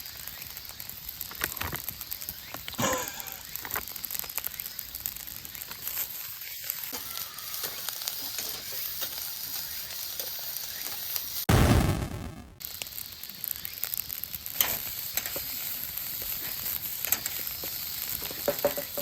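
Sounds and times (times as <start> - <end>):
rice sizzling in a pan: 0.0 - 11.5, 12.6 - 19.0
sudden loud burst: 11.5 - 12.6.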